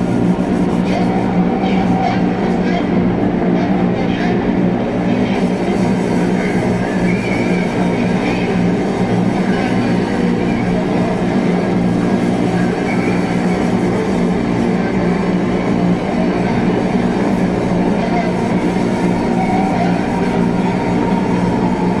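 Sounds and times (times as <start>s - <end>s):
low drone tones: 0.0s - 22.0s.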